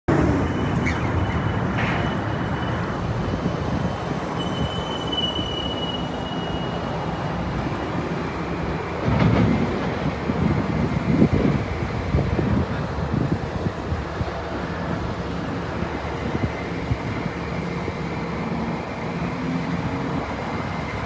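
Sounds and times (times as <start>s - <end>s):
high squeal: 0.2s - 7.2s
excavator engine rumble: 6.0s - 21.0s.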